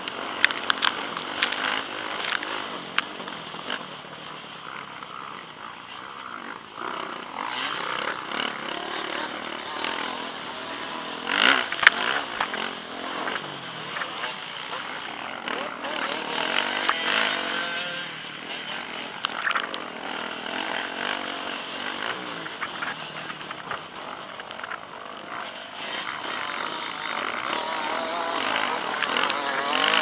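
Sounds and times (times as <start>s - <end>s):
motocross bike engine revving: 0.0s - 30.0s.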